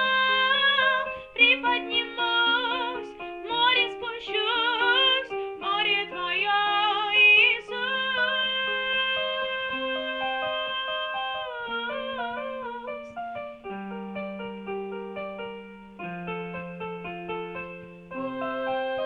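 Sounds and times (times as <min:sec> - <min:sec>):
woman singing worship song: 0:00.0 - 0:13.2
keyboard accompaniment: 0:00.0 - 0:19.0.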